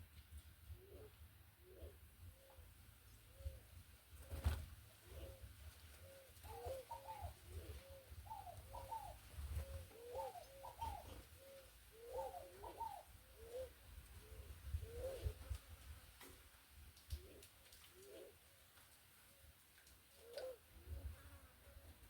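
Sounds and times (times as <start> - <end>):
doves cooing: 0.7 - 2.7, 3.3 - 15.5, 17.1 - 18.4, 20.2 - 21.2.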